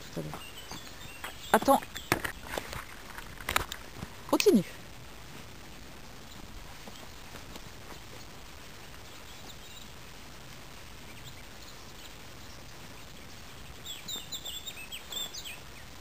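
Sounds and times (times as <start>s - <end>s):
songbird high chirps: 0.0s - 3.1s, 9.0s - 10.0s, 11.0s - 16.0s
rustling steps in grass: 0.0s - 11.2s
outdoor hiss: 0.0s - 16.0s.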